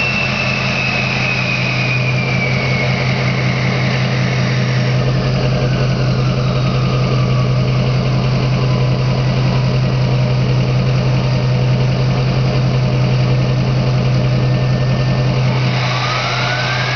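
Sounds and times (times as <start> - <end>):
turbo whistle falling in pitch: 0.0 - 7.7, 14.6 - 16.9
diesel engine idling: 0.0 - 16.9.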